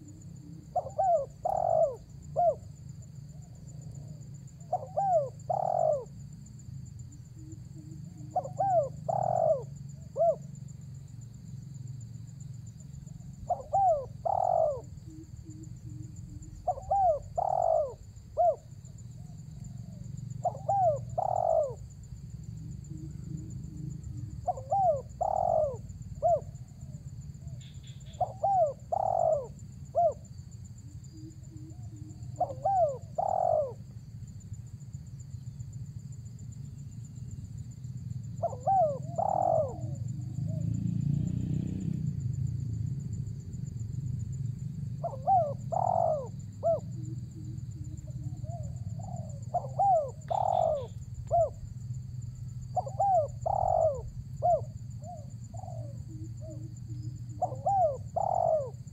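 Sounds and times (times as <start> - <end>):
dove cooing: 0.0 - 6.2, 7.3 - 10.5, 13.0 - 34.0, 38.3 - 40.8, 45.0 - 51.7, 52.6 - 58.9.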